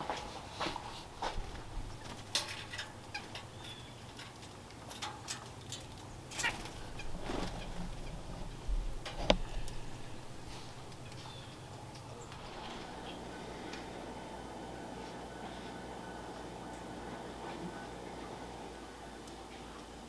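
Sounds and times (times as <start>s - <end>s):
bird wing flutters: 6.4s - 11.5s, 12.2s - 14.0s.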